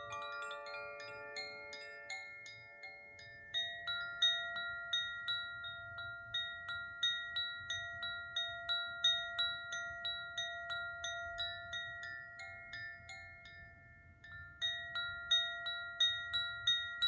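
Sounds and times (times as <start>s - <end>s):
chime ringing: 0.0s - 3.2s.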